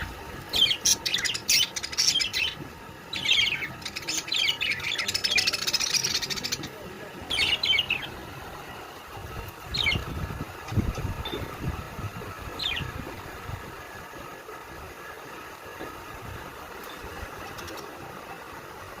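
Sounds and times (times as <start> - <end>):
birds chirping: 0.0 - 14.4, 16.5 - 18.5
low rumbling noise: 0.0 - 19.0.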